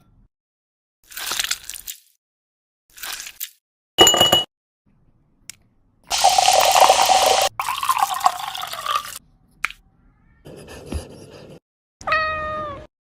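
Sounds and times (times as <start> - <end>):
tap water running: 6.1 - 9.2.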